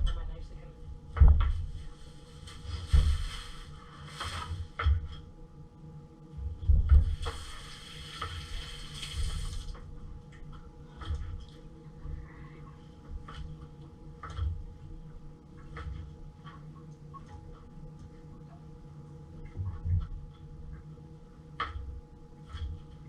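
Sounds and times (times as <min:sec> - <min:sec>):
tap running into a sink: 0:06.9 - 0:09.8.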